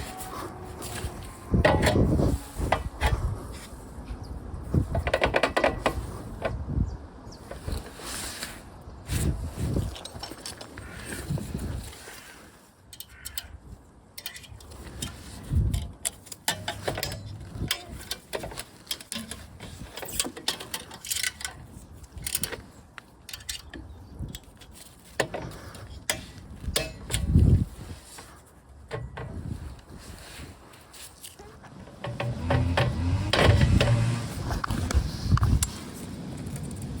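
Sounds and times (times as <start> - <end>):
metallic clicks of tools: 12.9 - 27.6.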